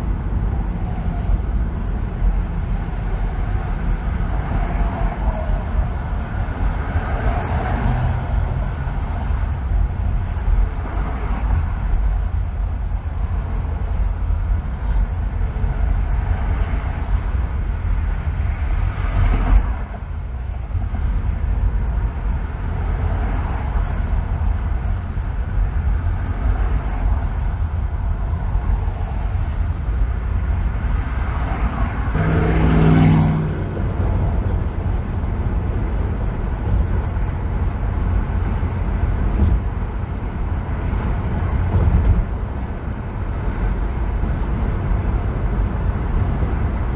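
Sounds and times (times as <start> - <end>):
tyre and road rumble: 0.0 - 46.9
vehicles passing by: 0.0 - 46.9
humming engine note: 32.1 - 36.9.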